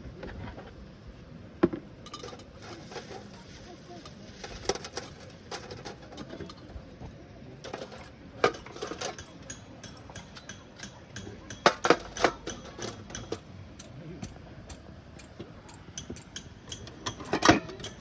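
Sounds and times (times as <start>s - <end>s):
hard objects clicking and knocking: 7.6s - 13.4s, 14.2s - 18.0s.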